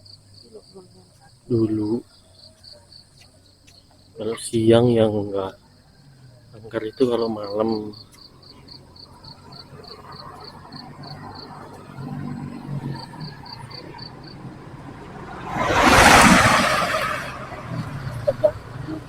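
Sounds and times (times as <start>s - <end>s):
insect chirping: 0.0s - 19.0s
motor vehicle passing: 5.9s - 19.0s.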